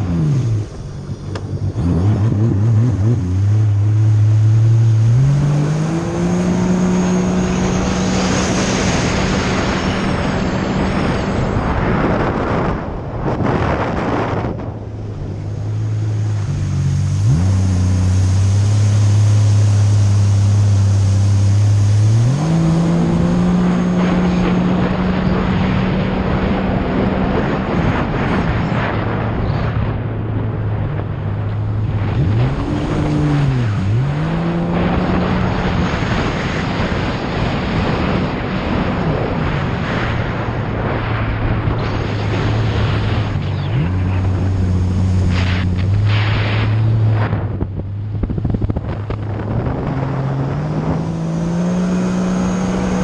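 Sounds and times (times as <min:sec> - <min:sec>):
jet ski engine drone: 0:00.0 - 0:53.0
wind: 0:00.0 - 0:53.0
water rushing: 0:14.3 - 0:27.7.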